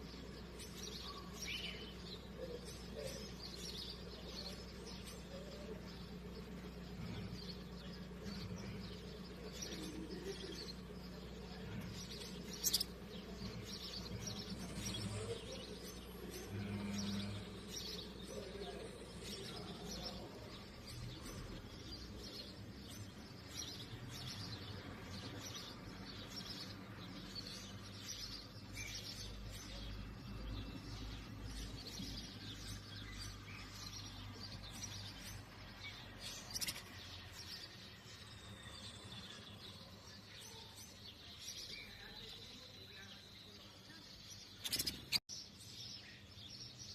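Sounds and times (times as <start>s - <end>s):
canaries chirping: 0.0s - 46.9s.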